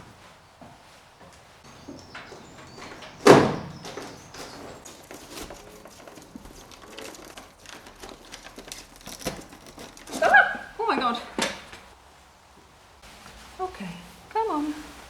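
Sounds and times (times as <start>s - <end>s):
scratchy rustling and knocks: 0.0s - 15.0s
baby birds cheeping: 1.7s - 5.0s
loud rustling thump: 1.7s - 5.6s.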